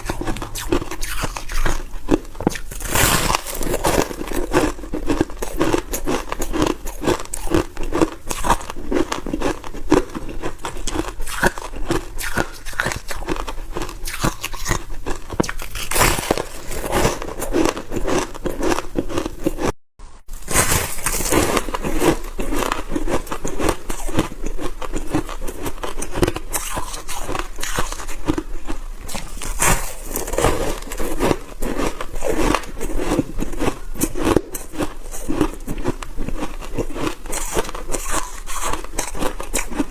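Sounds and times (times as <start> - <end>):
crunching frost being bitten: 0.0 - 19.7.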